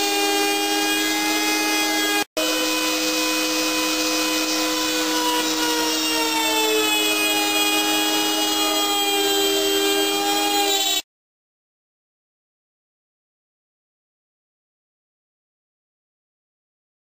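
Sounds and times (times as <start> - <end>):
router bit hissing in wood: 0.0 - 11.0
router spindle whining: 0.0 - 11.0.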